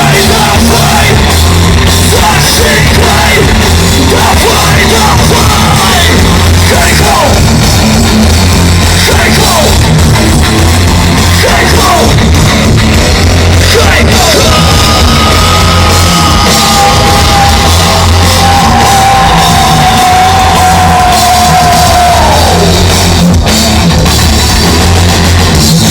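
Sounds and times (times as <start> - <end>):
live rock band playing: 0.0 - 25.9
person shouting vocals: 13.7 - 22.7.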